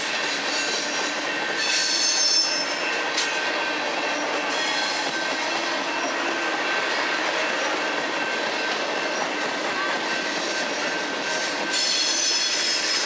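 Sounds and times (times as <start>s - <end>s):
steel wheels on rail: 0.0s - 13.0s
high-pitched wheel squeal: 1.6s - 2.8s, 10.8s - 13.0s.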